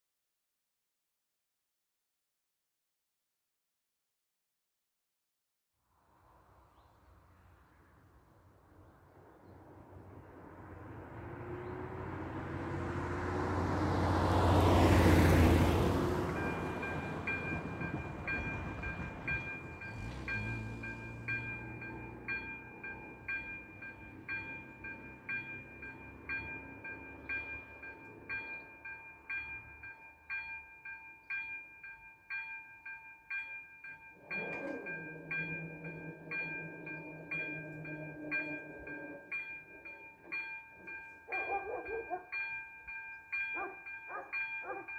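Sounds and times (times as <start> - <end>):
vehicle passing close by: 6.2 - 29.9, 34.2 - 42.3
level crossing warning bell: 10.7 - 44.9.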